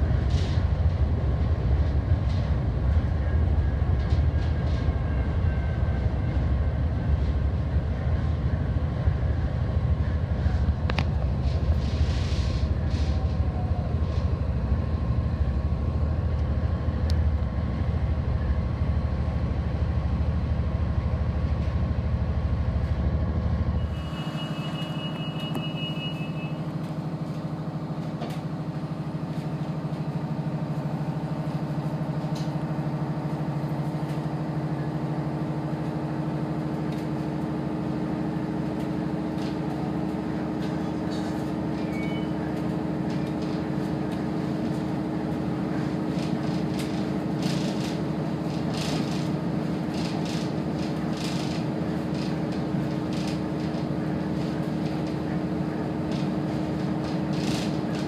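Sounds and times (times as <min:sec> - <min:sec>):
steady train hum: 0:00.0 - 0:58.0
train carriage rumble: 0:00.0 - 0:58.0
high beep: 0:23.8 - 0:26.6.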